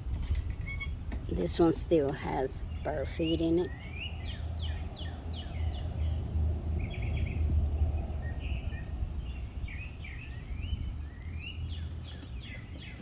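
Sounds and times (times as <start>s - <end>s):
songbirds chirping: 0.0s - 13.0s
low rumble: 3.7s - 11.8s.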